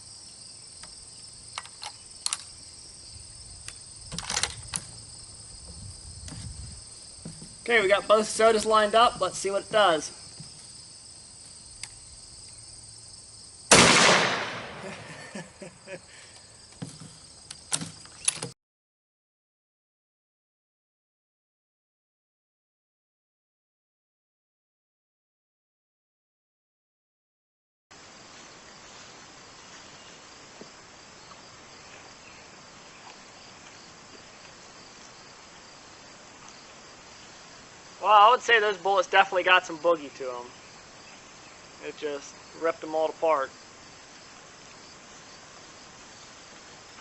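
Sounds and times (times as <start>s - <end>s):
insects chirring: 0.0s - 18.6s, 28.0s - 47.0s
rifle shot with echo: 13.7s - 14.9s.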